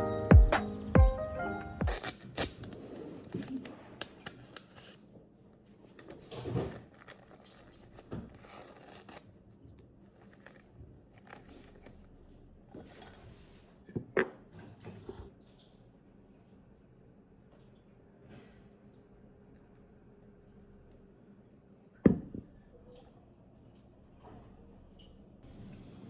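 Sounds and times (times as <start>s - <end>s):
paper bag rustling: 1.9s - 5.0s, 5.8s - 9.3s
paper tearing: 1.9s - 5.0s, 6.6s - 9.3s.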